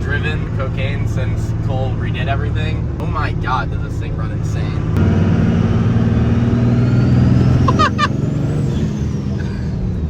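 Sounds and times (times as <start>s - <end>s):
diesel engine under throttle: 0.0s - 10.0s
faint turbo whistle: 7.7s - 8.1s.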